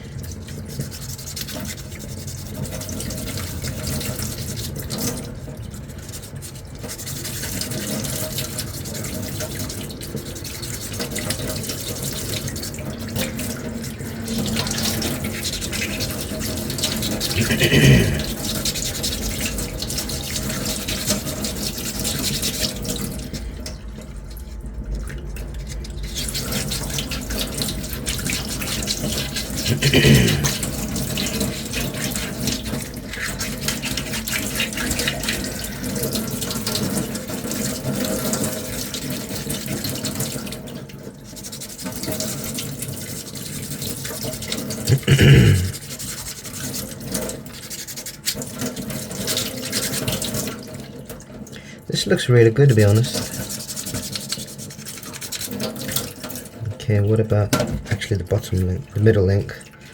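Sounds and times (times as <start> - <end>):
sandpaper rasping: 53.0 - 55.5.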